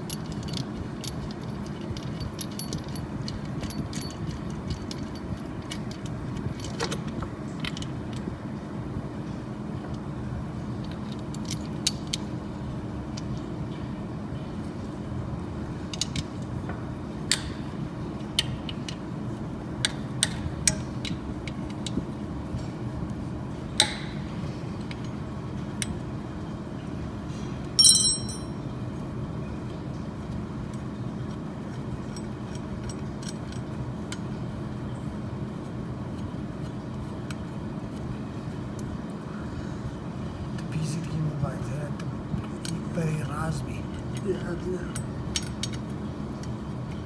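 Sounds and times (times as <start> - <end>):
metal parts clicking together: 0.0 - 8.2, 10.8 - 12.3, 15.9 - 16.4, 23.8 - 25.1, 27.8 - 28.5, 32.1 - 33.7, 43.9 - 47.0
steady low hum: 0.0 - 47.0
ringing metallic clink: 27.8 - 28.6.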